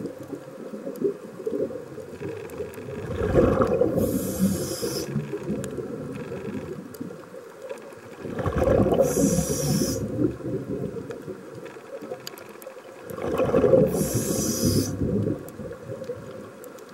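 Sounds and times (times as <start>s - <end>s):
exhaled bubbles gushing: 2.6s - 6.1s, 8.2s - 11.4s, 13.0s - 16.4s
regulator hissing: 4.0s - 5.2s, 9.0s - 10.1s, 13.9s - 15.0s.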